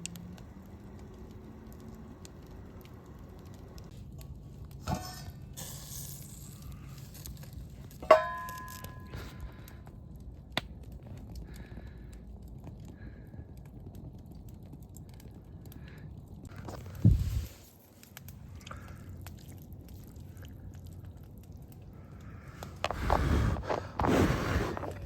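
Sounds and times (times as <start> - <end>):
metal cookware clinking: 4.8 - 5.4, 8.0 - 9.1.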